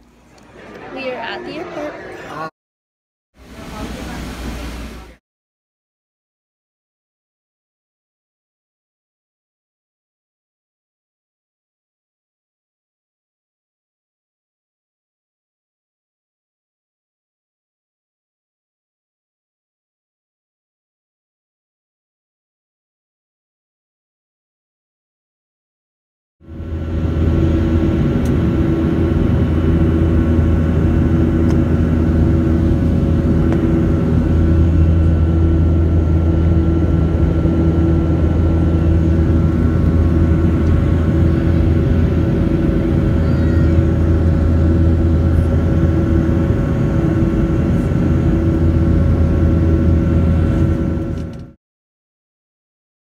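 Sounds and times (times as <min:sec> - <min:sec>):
jet engine hum in cabin: 0:03.4 - 0:05.2, 0:26.4 - 0:51.6.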